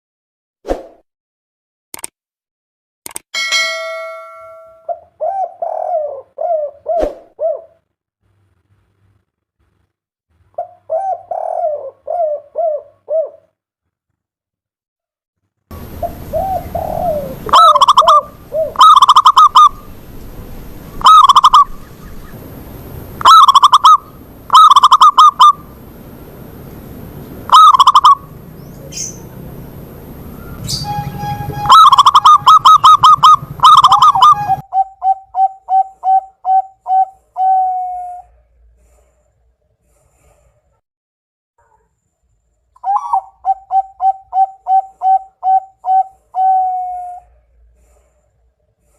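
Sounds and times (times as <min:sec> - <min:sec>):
doves cooing: 0:05.2 - 0:07.8, 0:10.6 - 0:13.4, 0:15.8 - 0:26.0, 0:27.4 - 0:38.3, 0:42.8 - 0:47.3.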